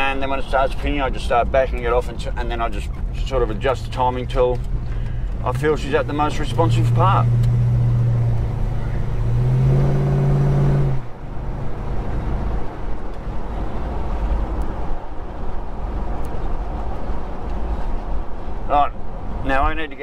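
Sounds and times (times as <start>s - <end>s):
car engine droning: 0.0s - 19.4s
car rolling rumble: 0.0s - 20.0s.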